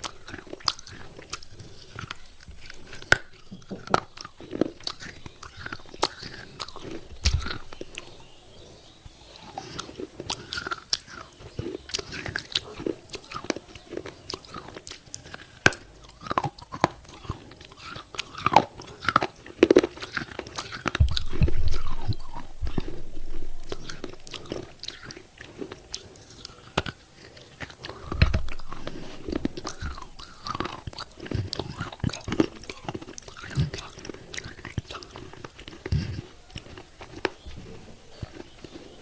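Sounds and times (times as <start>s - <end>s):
clay pieces crunching between teeth: 0.0s - 8.2s, 9.4s - 39.0s
heavy low rumbles: 21.0s - 24.9s, 28.0s - 30.8s.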